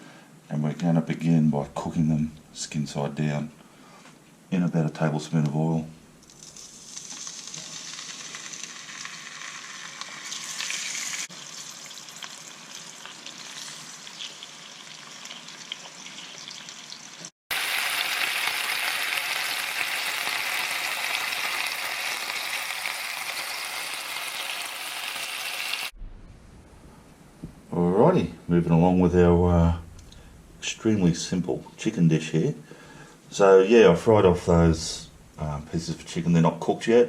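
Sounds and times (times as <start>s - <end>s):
chicken sizzling in oil: 6.6s - 26.0s.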